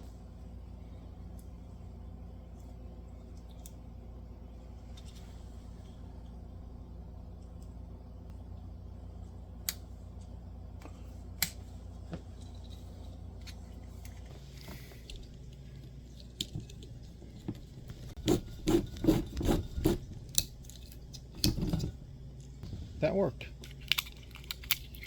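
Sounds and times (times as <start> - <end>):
scraping rasping strokes: 18.0 - 20.3.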